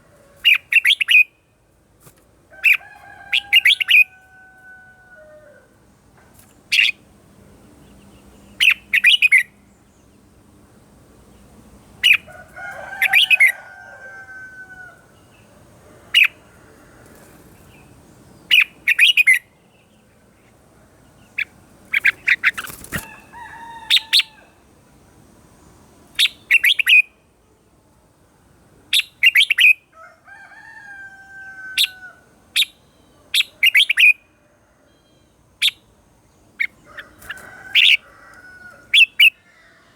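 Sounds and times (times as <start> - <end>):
bird chirping: 0.5 - 1.5, 6.4 - 10.3, 17.4 - 23.3, 25.7 - 27.6, 28.9 - 29.9, 31.8 - 34.3, 34.9 - 39.5.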